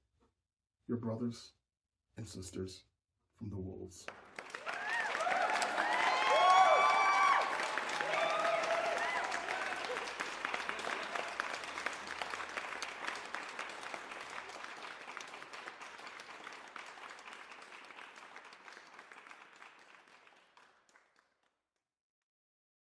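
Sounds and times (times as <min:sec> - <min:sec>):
audience applauding: 0:04.1 - 0:21.3.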